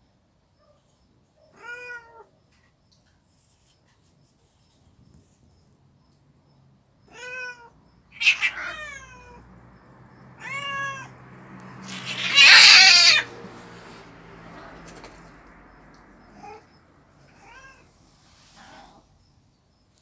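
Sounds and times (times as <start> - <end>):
cats yowling in a fight: 1.5 - 2.3, 7.1 - 15.3, 16.2 - 17.9.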